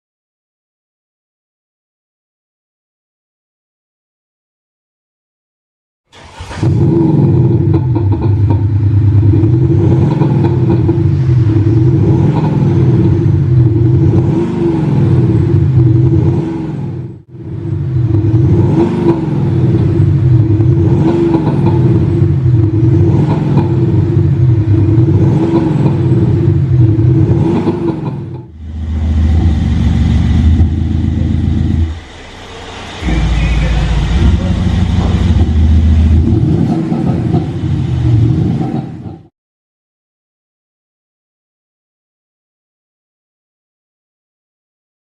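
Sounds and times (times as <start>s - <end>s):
synthetic engine revving: 6.1s - 39.3s.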